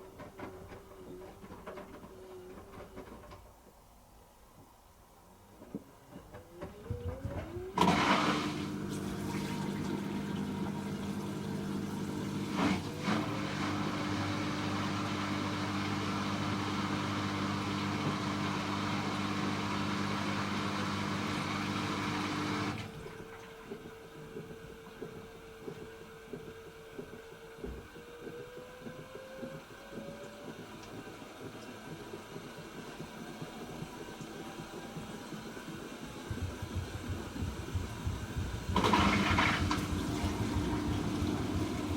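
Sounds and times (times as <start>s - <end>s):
washing machine whine: 0.0s - 41.9s
water rushing through machine: 6.7s - 26.3s, 28.3s - 41.9s
machine knock: 34.6s - 41.9s.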